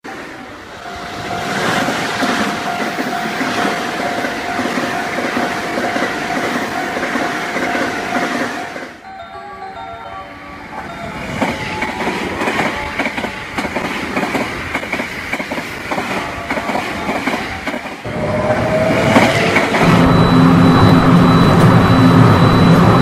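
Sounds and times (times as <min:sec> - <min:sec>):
train clickety-clack over rail joints: 0:00.0 - 0:09.0, 0:10.8 - 0:23.0
train motor whine and hum: 0:18.0 - 0:23.0.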